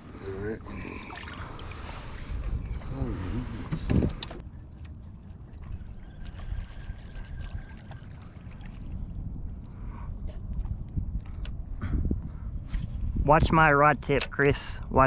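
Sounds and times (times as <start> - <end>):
water lapping against kayak hull: 0.6 - 11.4
steady low rumble: 8.2 - 15.0.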